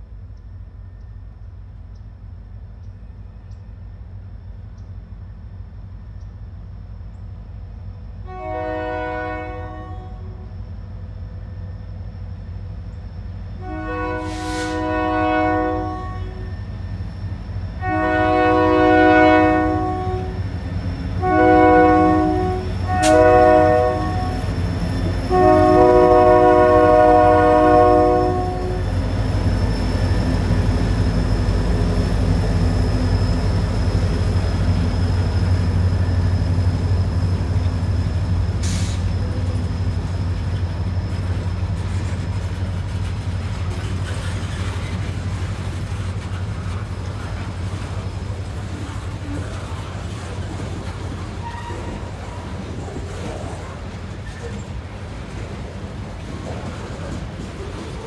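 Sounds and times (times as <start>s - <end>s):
freight train rumbling past: 0.0s - 58.0s
locomotive air horn blasts: 8.3s - 10.5s, 13.6s - 16.7s, 17.8s - 20.4s, 21.2s - 29.0s, 51.4s - 52.3s.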